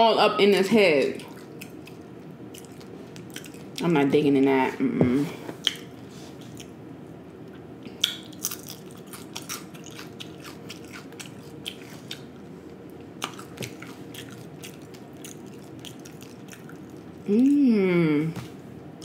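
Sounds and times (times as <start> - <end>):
person chewing: 1.2 - 3.8, 5.6 - 6.8, 7.9 - 17.6
crunching bites: 8.0 - 12.3.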